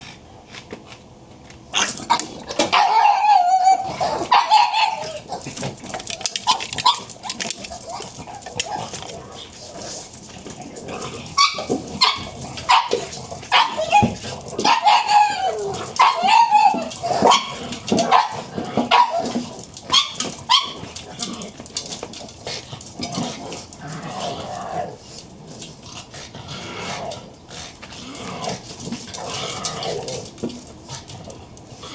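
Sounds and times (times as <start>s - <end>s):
dogs whining: 1.8s - 22.2s
dogs yapping: 1.8s - 25.1s.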